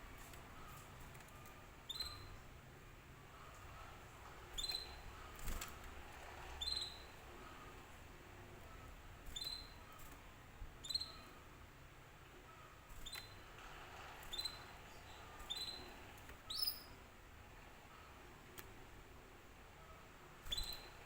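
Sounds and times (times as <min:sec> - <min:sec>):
canary chirping: 0:01.5 - 0:02.5, 0:03.4 - 0:07.8, 0:08.6 - 0:10.2, 0:10.8 - 0:11.5, 0:12.5 - 0:17.1, 0:20.4 - 0:21.0.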